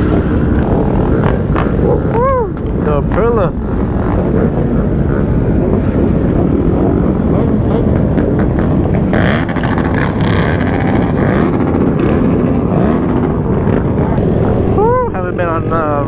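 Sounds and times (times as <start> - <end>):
motorcycles running: 0.0 - 16.0
wind rushing over microphone: 0.0 - 16.0.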